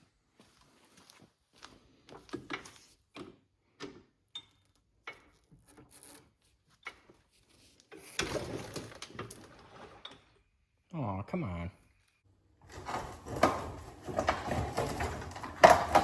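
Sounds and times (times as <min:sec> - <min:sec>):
scraping rustle: 0:12.6 - 0:16.0
tools clicking and knocking: 0:12.7 - 0:16.0.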